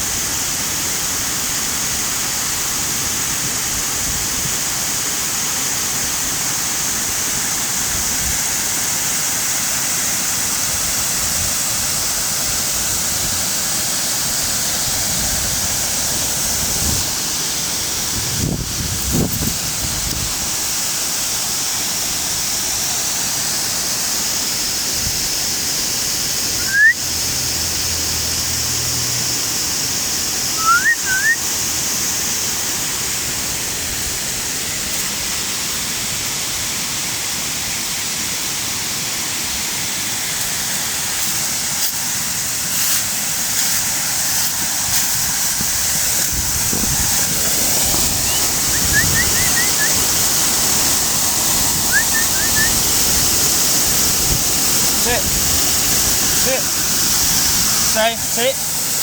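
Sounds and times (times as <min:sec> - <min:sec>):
waterfall rushing: 0:00.0 - 0:59.0
short rising chirps: 0:30.5 - 0:31.4, 0:48.2 - 0:50.1, 0:51.9 - 0:52.8.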